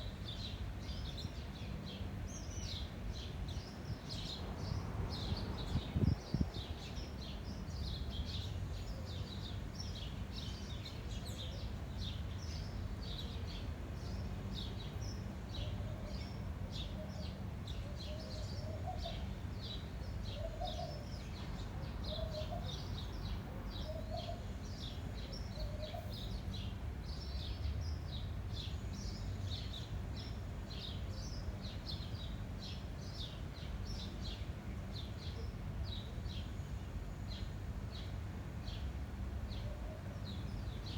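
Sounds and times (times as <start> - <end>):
low wind rumble: 3.4 - 7.9.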